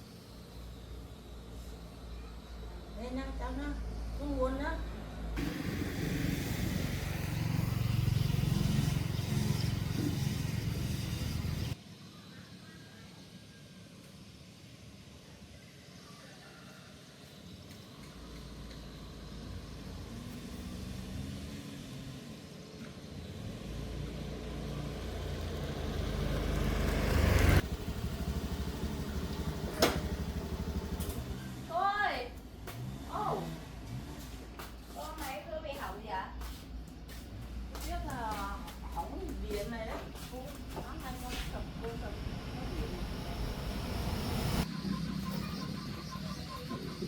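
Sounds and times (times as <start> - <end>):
road and wind noise: 2.5 - 11.8, 17.9 - 45.2
vehicle engine running: 3.0 - 11.8, 17.9 - 35.9, 36.7 - 47.0.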